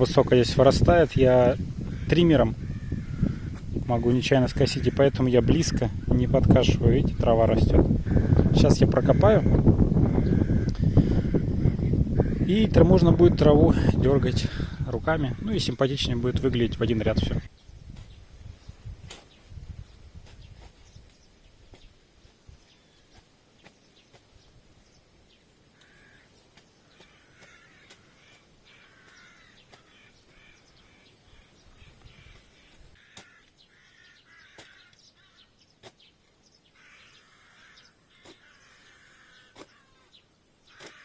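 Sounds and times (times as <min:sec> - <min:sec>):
crows cawing faintly: 0:01.4 - 0:06.4, 0:07.9 - 0:13.0, 0:25.6 - 0:36.0, 0:36.6 - 0:41.0.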